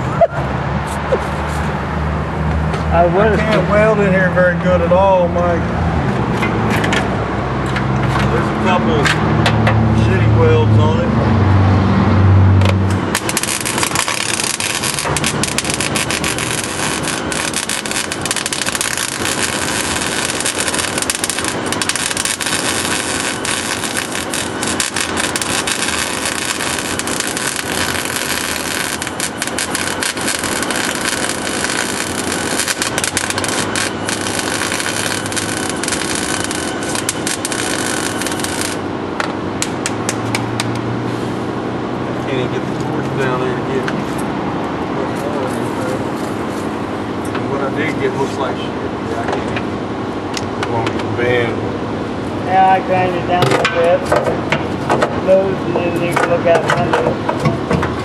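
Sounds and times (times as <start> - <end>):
welder arc crackling: 12.5 - 40.9.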